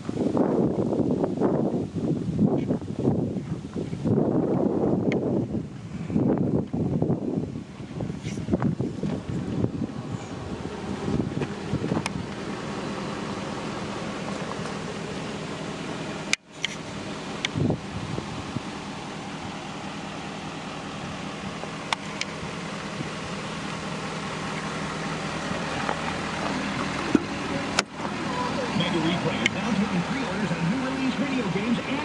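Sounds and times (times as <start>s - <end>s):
truck engine running: 0.0s - 32.0s.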